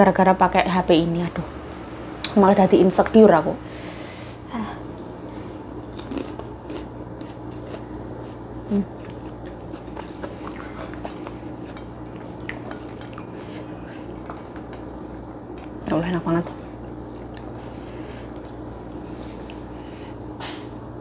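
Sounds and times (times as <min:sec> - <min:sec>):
person chewing: 0:05.1 - 0:15.8, 0:16.5 - 0:20.1.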